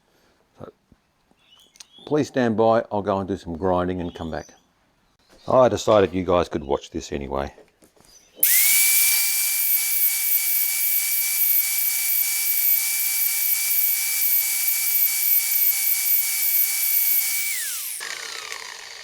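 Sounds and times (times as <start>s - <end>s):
grinder whining on steel: 8.4s - 19.0s.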